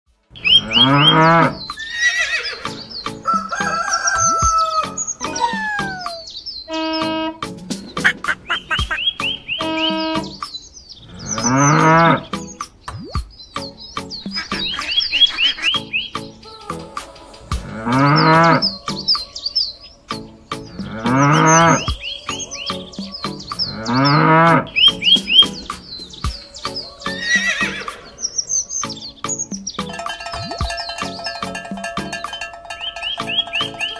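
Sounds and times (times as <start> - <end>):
birds chirping: 0.2 - 33.9
farm animal calls: 0.3 - 12.6, 13.6 - 33.9
cow mooing: 0.6 - 3.5, 11.1 - 12.3, 17.6 - 18.8, 20.8 - 21.9, 23.6 - 24.8
music with steady beat: 2.7 - 10.6, 11.4 - 19.3, 20.1 - 27.8, 28.8 - 33.9
rooster crowing: 3.2 - 6.4, 17.0 - 20.1
quick falling chirps: 7.7 - 10.6.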